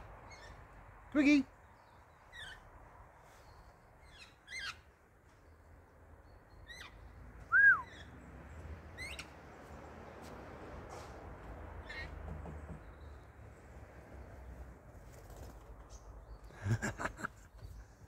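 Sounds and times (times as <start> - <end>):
loud clear bird whistle: 6.7 - 8.1.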